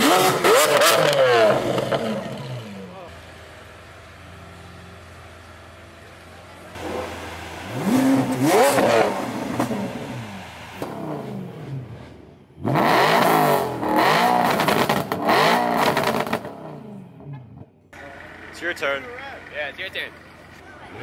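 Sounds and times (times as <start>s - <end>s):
car engines revving: 0.0s - 21.0s
car engine blipped in quick revs: 6.7s - 17.0s.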